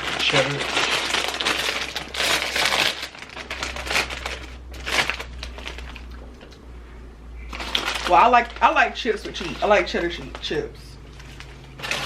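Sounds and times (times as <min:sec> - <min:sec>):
chip bag crinkling: 0:00.0 - 0:06.6, 0:07.4 - 0:12.0.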